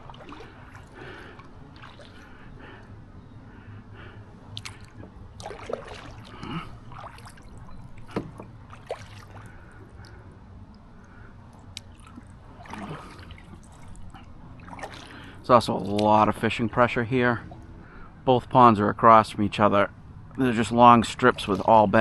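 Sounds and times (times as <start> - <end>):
paddle splashing water: 0.0 - 3.0, 3.9 - 18.1, 20.3 - 22.0.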